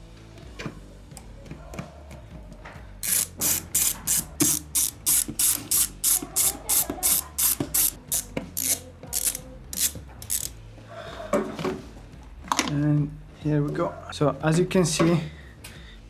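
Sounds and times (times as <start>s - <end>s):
ratchet wrench clicking: 3.0s - 10.6s.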